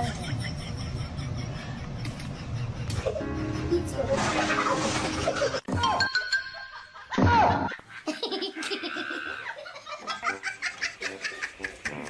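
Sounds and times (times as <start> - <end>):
music: 3.1 - 6.2, 11.1 - 12.0
person laughing: 7.0 - 12.0.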